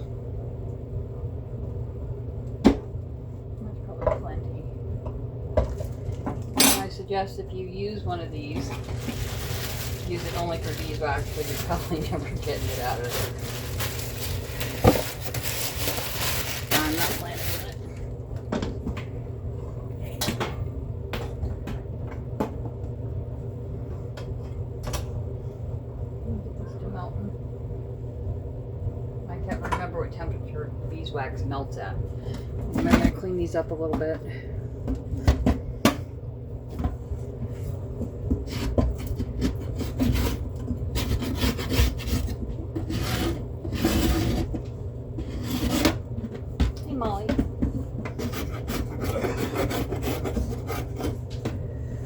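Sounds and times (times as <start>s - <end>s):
steady low hum: 0.0s - 52.0s
scraping beehive trays: 8.6s - 17.8s.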